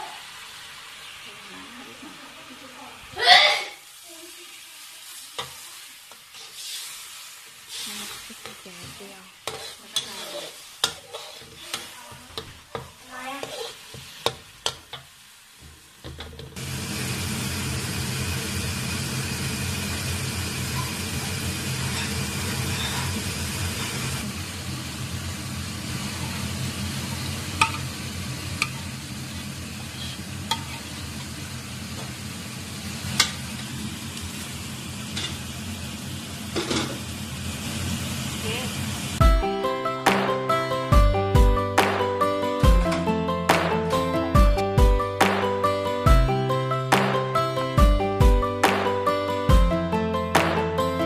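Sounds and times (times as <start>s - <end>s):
frying sizzle: 0.0s - 51.0s
spoon scraping a pan: 5.4s - 15.1s, 21.8s - 24.1s, 28.6s - 28.9s, 29.8s - 31.3s.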